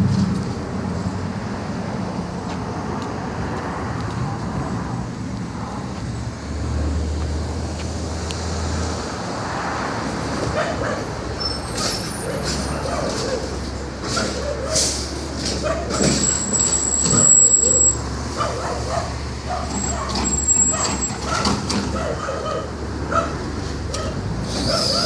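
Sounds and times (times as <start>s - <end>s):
garbage truck engine droning: 0.0s - 2.0s
street traffic: 0.0s - 25.0s
dog barking: 10.5s - 11.1s, 14.2s - 14.8s, 15.6s - 16.0s, 18.3s - 25.0s.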